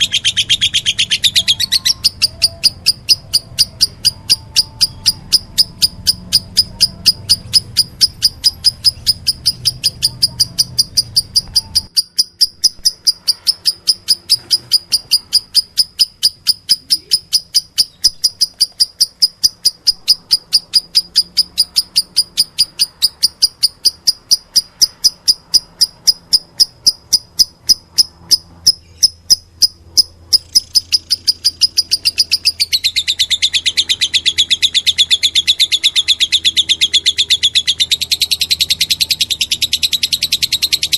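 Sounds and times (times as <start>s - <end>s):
lovebird chirping: 0.0s - 40.9s.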